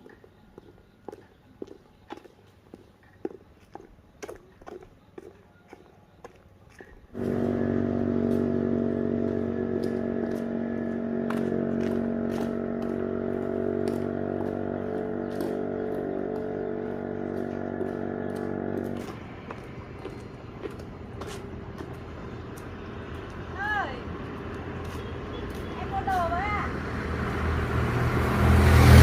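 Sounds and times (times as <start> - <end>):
small engine running: 7.2 - 29.0.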